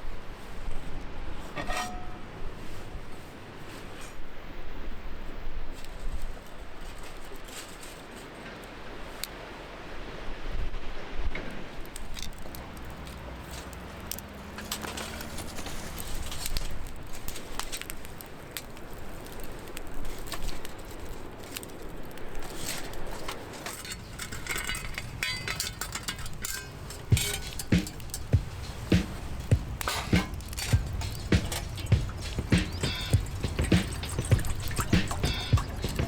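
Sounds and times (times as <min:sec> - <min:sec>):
wood fire crackling: 0:11.8 - 0:36.0
light metallic clinks: 0:23.6 - 0:36.0.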